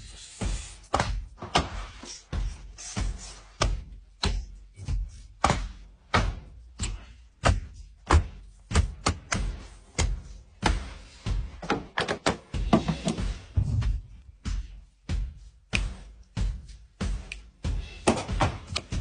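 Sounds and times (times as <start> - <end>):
sharp knocks and thuds: 0.9 - 14.7, 18.0 - 19.0.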